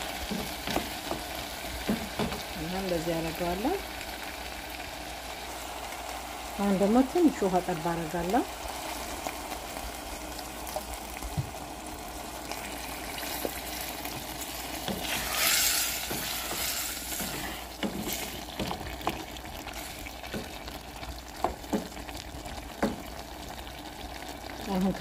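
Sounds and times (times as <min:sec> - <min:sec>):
vegetables sizzling in a pot: 0:00.0 - 0:25.0.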